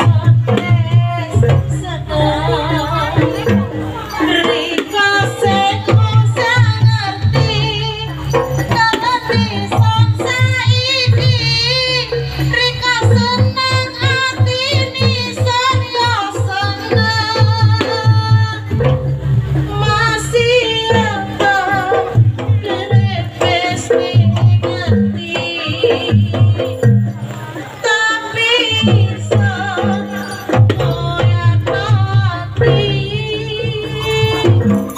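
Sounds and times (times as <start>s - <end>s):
hand drums beating: 0.0s - 34.9s
wavering ornamented melody: 29.8s - 31.6s, 33.9s - 34.9s.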